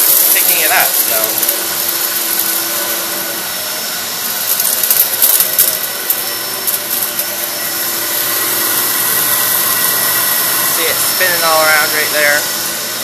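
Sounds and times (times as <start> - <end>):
upright vacuum running on carpet: 0.0 - 13.0
vacuum sucking up sand: 7.4 - 13.0.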